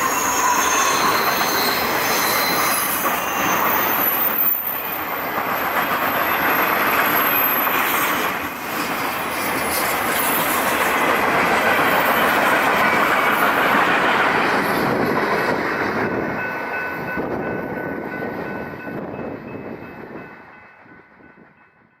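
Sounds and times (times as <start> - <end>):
faint wheel squeal: 0.0 - 4.9
freight train wheels rumbling: 0.0 - 22.0.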